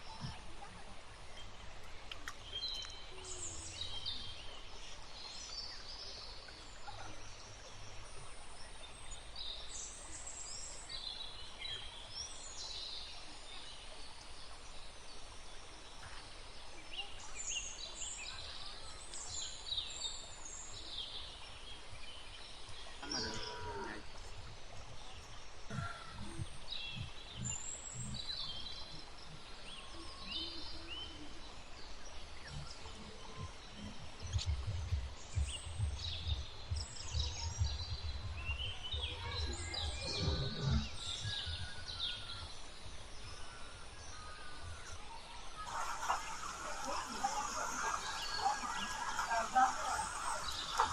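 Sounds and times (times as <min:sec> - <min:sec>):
small birds chirping: 0:00.0 - 0:50.9
steady low rumble: 0:32.2 - 0:43.2
soft low thumps: 0:32.4 - 0:43.3.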